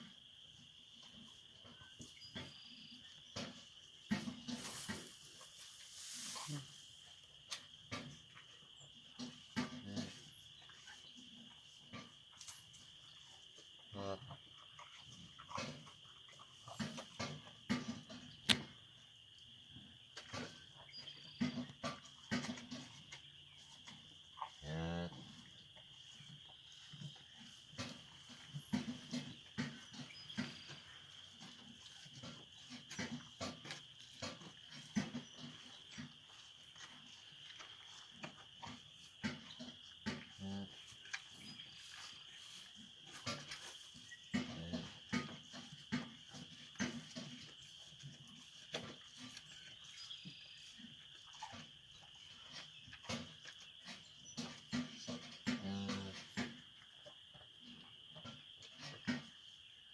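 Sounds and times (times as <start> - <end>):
cow and calves soft sounds: 0.0 - 59.9
cow grunting: 55.5 - 56.4.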